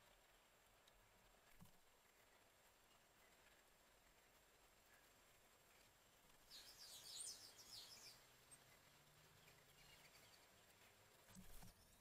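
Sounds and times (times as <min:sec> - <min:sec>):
high-pitched bird chirps: 0:06.5 - 0:08.2.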